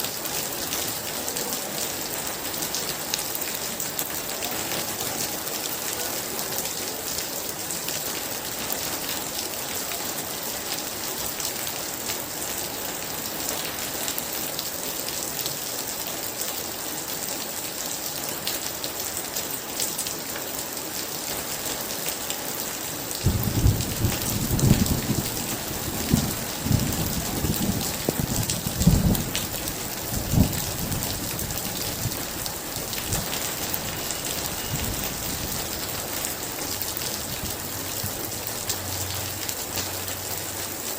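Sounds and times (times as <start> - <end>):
heavy rain hissing: 20.8 - 40.9
thunder rolling: 23.2 - 32.2.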